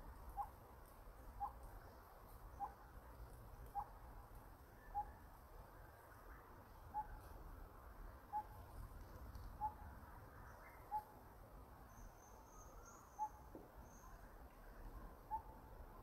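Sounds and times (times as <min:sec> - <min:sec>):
faint high chirping: 0:04.7 - 0:07.4, 0:11.8 - 0:15.7.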